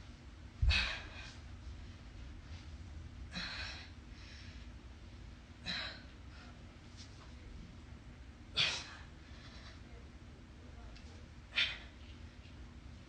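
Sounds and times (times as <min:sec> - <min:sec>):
woman breathing hard: 0:00.6 - 0:01.5, 0:03.3 - 0:04.8, 0:05.6 - 0:06.7.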